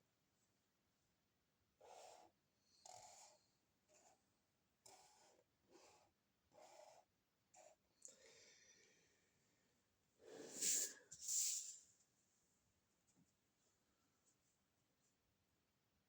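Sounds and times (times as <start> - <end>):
faint breathing puffs: 10.2 - 11.8.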